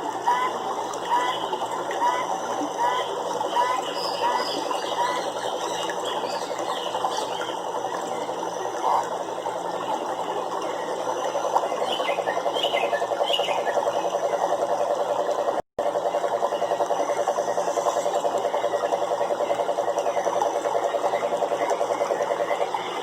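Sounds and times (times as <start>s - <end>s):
frogs calling in trills: 0.3s - 23.0s.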